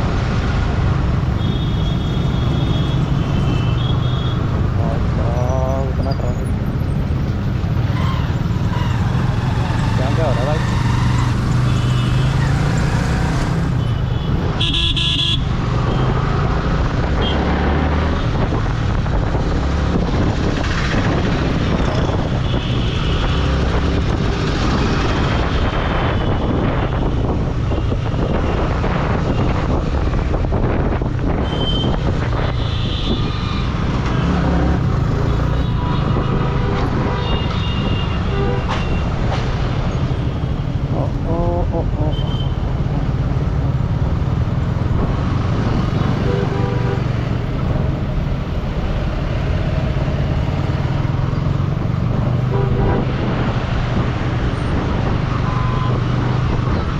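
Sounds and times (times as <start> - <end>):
motorcycle engine and road rumble: 0.0 - 56.9
vehicle horn: 13.8 - 15.4, 46.2 - 47.1, 52.5 - 53.1.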